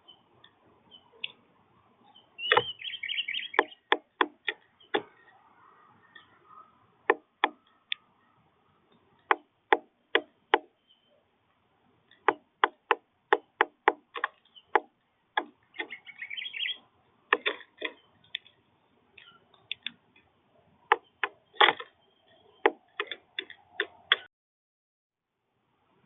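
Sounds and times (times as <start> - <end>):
high bird chirps: 2.0 - 6.7, 10.2 - 11.2, 14.4 - 16.9, 20.9 - 23.0.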